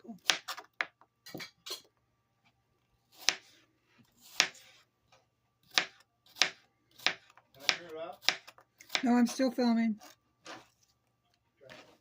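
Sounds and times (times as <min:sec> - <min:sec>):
knife cutting apple: 0:00.1 - 0:01.9, 0:03.1 - 0:04.9, 0:05.6 - 0:09.4.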